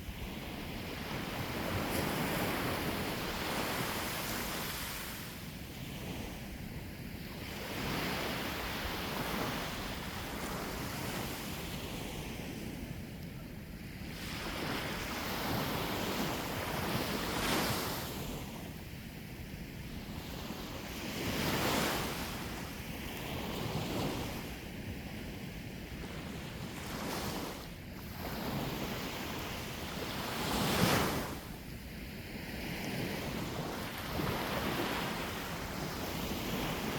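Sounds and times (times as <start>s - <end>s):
sea waves breaking on shore: 0.0s - 6.6s, 26.0s - 36.9s
wind noise on microphone: 0.0s - 36.9s.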